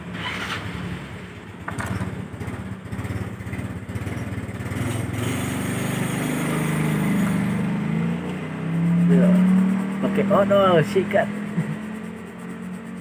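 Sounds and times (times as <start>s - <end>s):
small engine buzzing: 4.8s - 13.0s.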